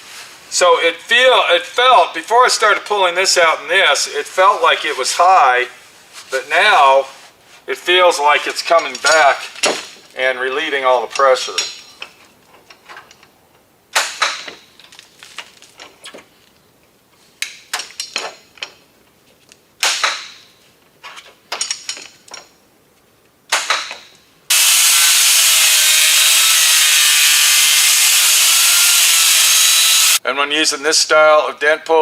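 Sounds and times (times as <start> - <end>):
power tool with wavering tone: 24.5 - 30.2.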